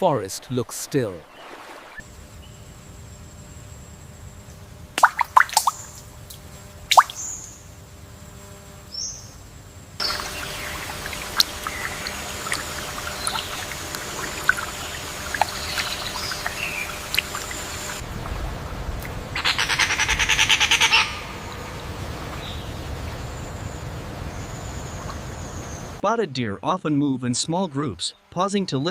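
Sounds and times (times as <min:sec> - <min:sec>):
steady ambient hiss: 0:00.0 - 0:28.9
bird chirps and calls: 0:14.3 - 0:18.0.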